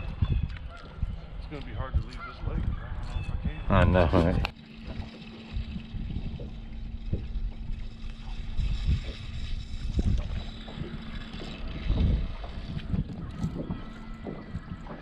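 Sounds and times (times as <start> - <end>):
wind buffeting microphone: 0.0 - 15.0
faint steady hum: 3.5 - 15.0.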